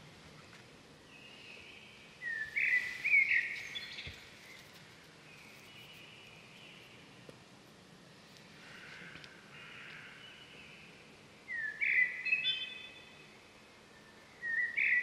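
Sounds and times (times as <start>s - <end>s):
faint outdoor hiss: 0.0s - 15.0s
birds whistled calls: 1.2s - 4.6s, 11.5s - 13.2s, 13.9s - 15.0s.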